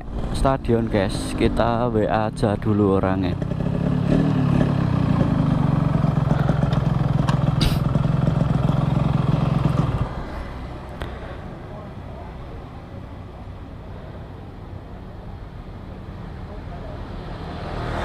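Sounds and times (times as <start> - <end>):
faint street noise: 0.0 - 18.0
motorcycle engine idling: 2.4 - 13.8.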